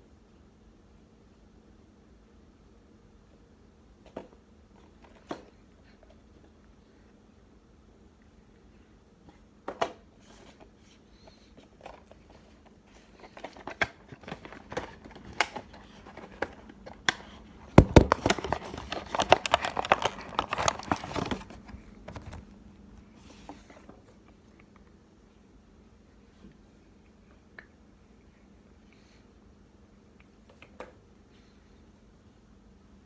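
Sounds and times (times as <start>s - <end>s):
packaging crinkling: 13.5s - 22.6s
case clicks and knocks: 17.7s - 22.4s.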